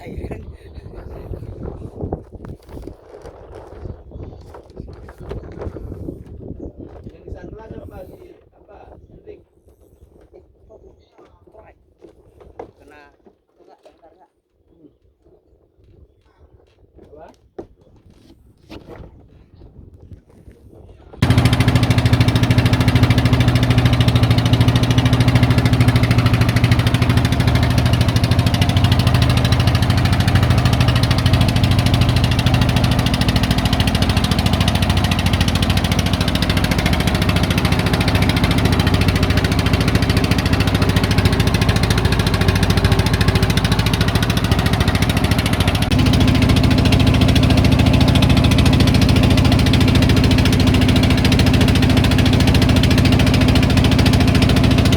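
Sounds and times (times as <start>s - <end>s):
engine running steadily: 21.2s - 54.9s.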